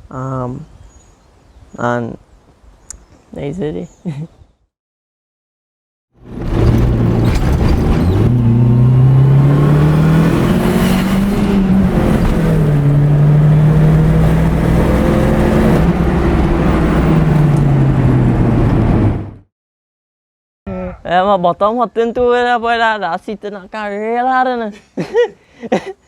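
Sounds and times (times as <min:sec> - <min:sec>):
car engine revving: 0:06.2 - 0:19.4.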